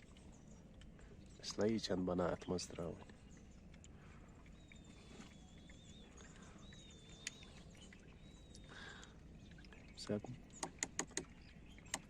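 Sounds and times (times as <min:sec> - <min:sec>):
faint bird high wavering calls: 0:02.4 - 0:12.0
sharp click: 0:10.6 - 0:11.3.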